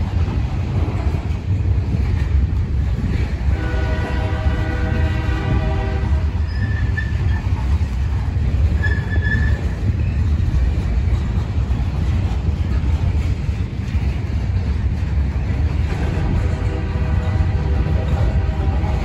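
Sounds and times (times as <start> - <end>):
steel wheels rumbling on rail: 0.0 - 19.0
high wheel squeals: 6.4 - 7.5, 8.7 - 9.8.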